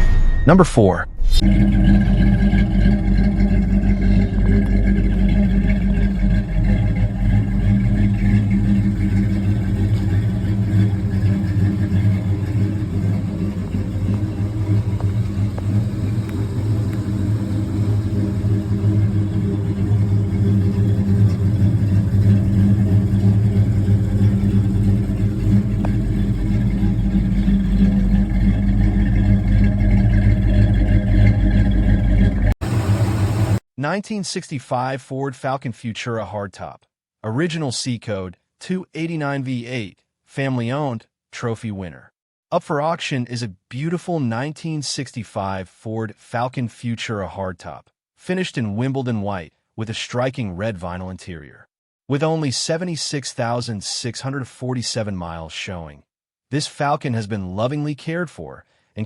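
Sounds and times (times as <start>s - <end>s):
car engine running: 1.2s - 33.6s.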